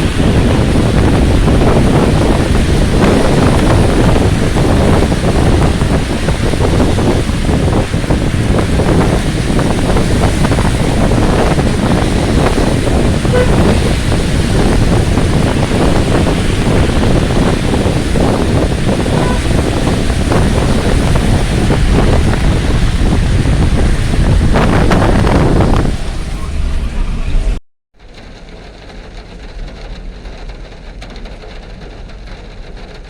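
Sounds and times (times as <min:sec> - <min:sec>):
heavy rain pouring: 0:00.0 - 0:33.0
wind rumbling on microphone: 0:00.0 - 0:33.0.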